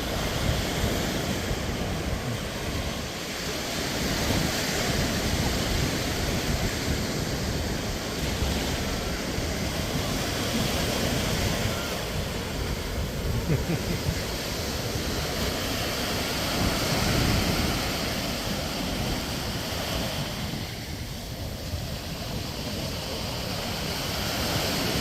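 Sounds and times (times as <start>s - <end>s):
surf breaking on beach: 0.0s - 25.0s
wind rumbling on microphone: 0.0s - 25.0s.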